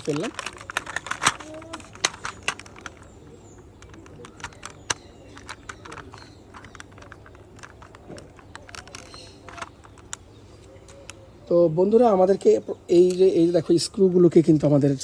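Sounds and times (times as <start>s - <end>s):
small plastic pieces clicking: 0.0s - 10.2s.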